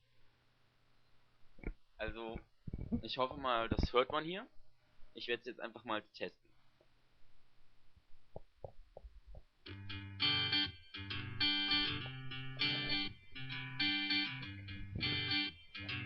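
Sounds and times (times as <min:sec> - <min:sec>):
distorted electric guitar riff: 0:09.7 - 0:16.0.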